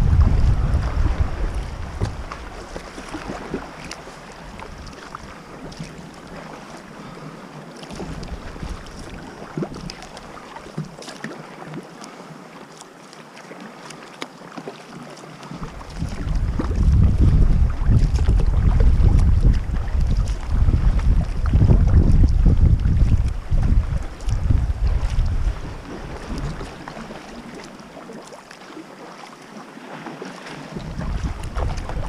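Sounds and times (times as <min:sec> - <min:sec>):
wind buffeting microphone: 0:00.0 - 0:03.7, 0:15.5 - 0:27.3, 0:30.7 - 0:32.0
water splashing against kayak: 0:00.0 - 0:32.0.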